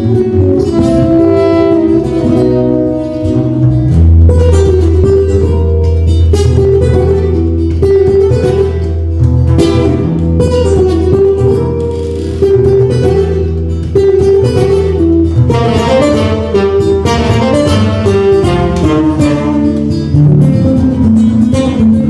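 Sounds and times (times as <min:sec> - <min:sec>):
plucked guitar: 0:00.0 - 0:22.0
steady low bass: 0:00.0 - 0:22.0.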